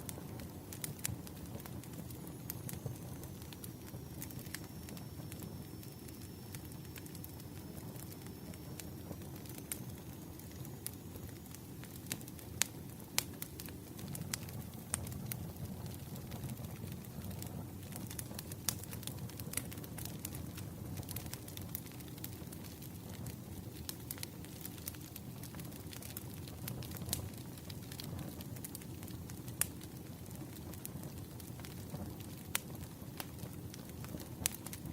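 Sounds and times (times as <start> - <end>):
fire crackling and popping: 0.0 - 34.9
firewood flames rumbling: 0.0 - 34.9.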